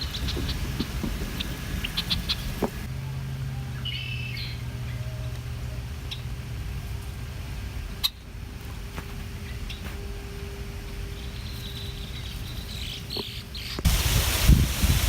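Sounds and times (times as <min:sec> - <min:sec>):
wind buffeting microphone: 0:00.0 - 0:02.9, 0:13.8 - 0:15.0
low background rumble: 0:00.0 - 0:15.0
bird chirps: 0:01.4 - 0:02.7, 0:03.5 - 0:06.3, 0:09.4 - 0:10.0, 0:11.0 - 0:13.9.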